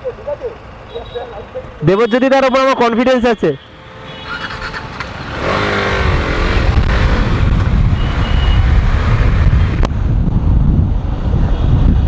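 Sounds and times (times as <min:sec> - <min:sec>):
traffic noise: 0:00.0 - 0:12.0
motorcycle riding: 0:04.0 - 0:12.0
wind and road rumble: 0:04.0 - 0:12.0.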